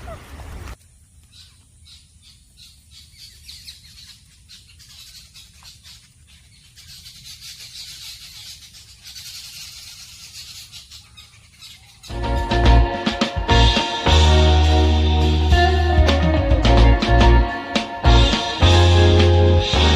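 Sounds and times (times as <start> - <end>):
animals chirring and hissing: 2.3 - 12.2
loud guitar music: 12.1 - 19.9.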